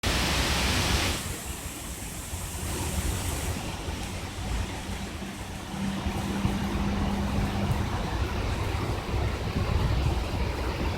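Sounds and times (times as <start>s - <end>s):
loud hiss: 0.0s - 3.9s
rain falling: 0.0s - 10.9s
wind on microphone: 0.5s - 10.9s.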